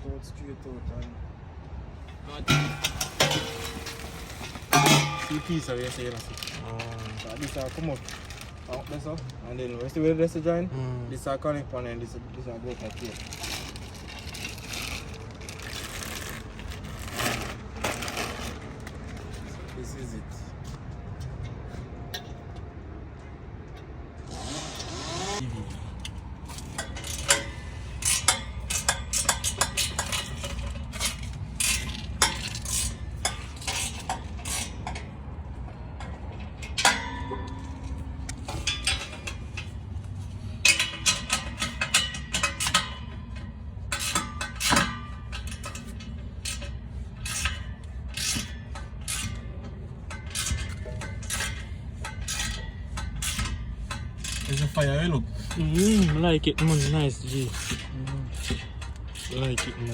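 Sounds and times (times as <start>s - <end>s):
metal pipes clinking and clanking: 2.0s - 9.9s, 25.4s - 59.9s.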